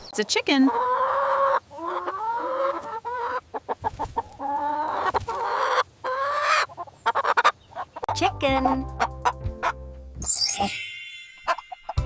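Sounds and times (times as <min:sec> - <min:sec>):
chicken clucking and calling: 0:00.2 - 0:09.8.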